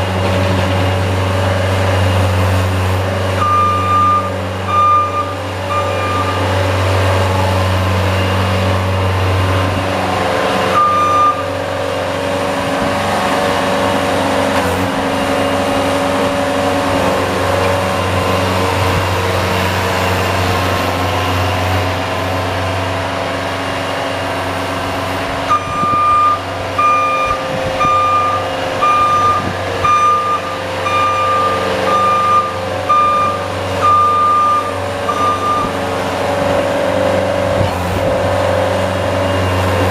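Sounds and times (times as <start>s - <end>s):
reversing alarm beeping: 3.4s - 6.5s, 10.7s - 11.5s, 25.5s - 35.8s.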